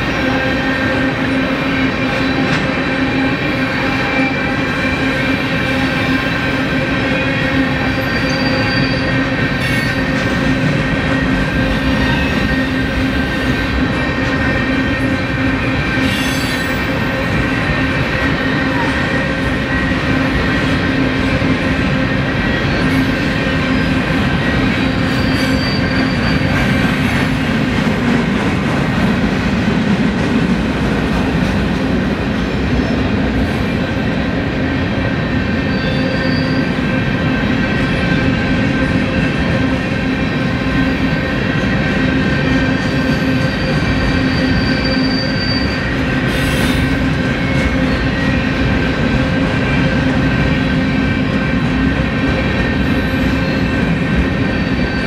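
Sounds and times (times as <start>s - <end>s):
high wheel squeals: 0.0s - 10.1s, 15.8s - 17.7s, 22.4s - 27.0s, 35.6s - 36.8s, 42.6s - 48.8s
train wheels rumbling on rail: 0.0s - 55.0s.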